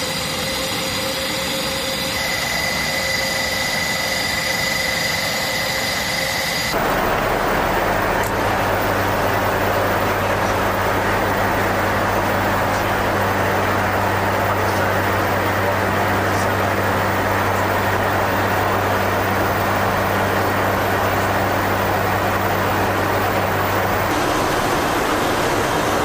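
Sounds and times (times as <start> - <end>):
aircraft engines droning: 0.0 - 26.0
low propeller hum: 6.7 - 26.0.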